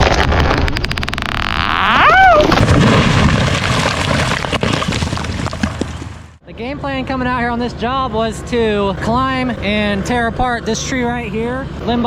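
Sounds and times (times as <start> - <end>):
tree crashing down: 0.0 - 6.4
wood cracking and splitting: 0.0 - 6.4
short pitched whoop: 1.6 - 2.6.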